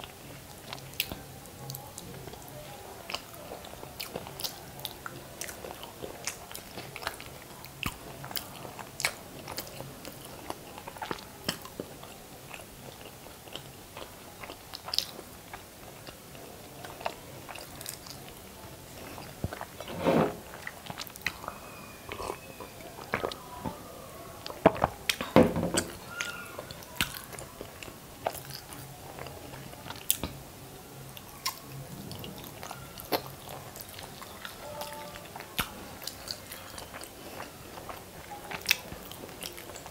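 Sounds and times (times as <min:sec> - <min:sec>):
chewing and biting food: 0:24.4 - 0:30.4, 0:31.4 - 0:39.9.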